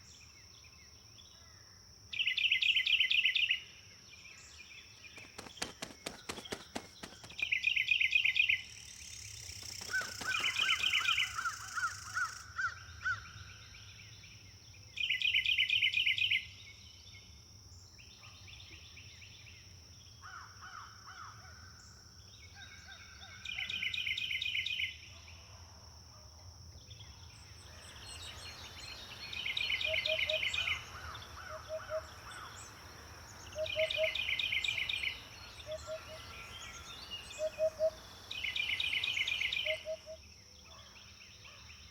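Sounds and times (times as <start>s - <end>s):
hoopoe calling: 5.2s - 7.4s, 9.6s - 12.4s, 27.8s - 40.2s
rapid high bird trills: 5.2s - 7.6s, 9.5s - 12.4s.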